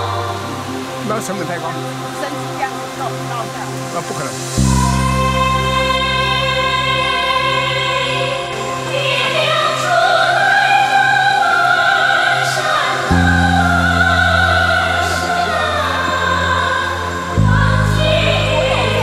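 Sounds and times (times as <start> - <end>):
choir singing: 0.0 - 19.0
orchestral chords: 12.7 - 19.0.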